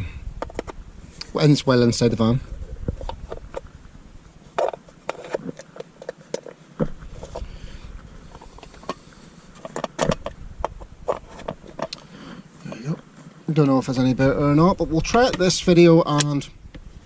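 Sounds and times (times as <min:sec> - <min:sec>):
handling clicks and knocks: 0:04.5 - 0:07.5, 0:08.3 - 0:13.8, 0:15.0 - 0:16.5.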